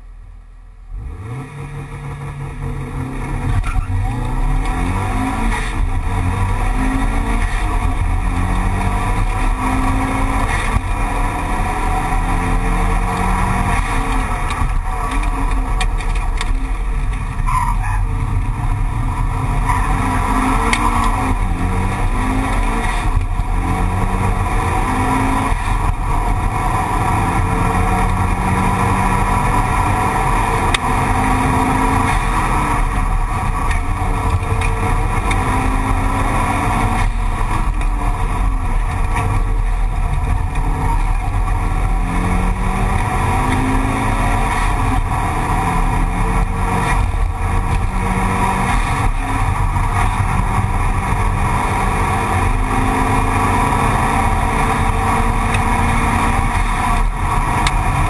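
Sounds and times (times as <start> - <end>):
car engine accelerating: 0.0 - 58.0
road noise rumble: 0.0 - 58.0.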